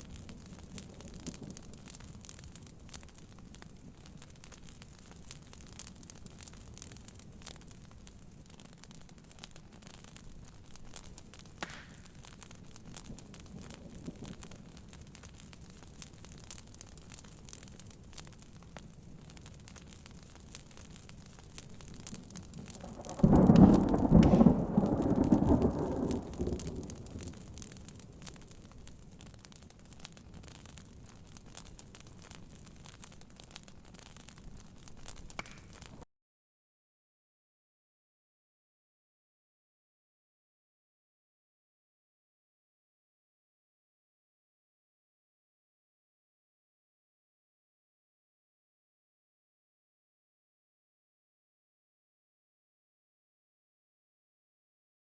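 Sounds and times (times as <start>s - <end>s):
rain pattering on a tent: 0.0s - 36.1s
wood fire crackling and popping: 0.0s - 36.1s.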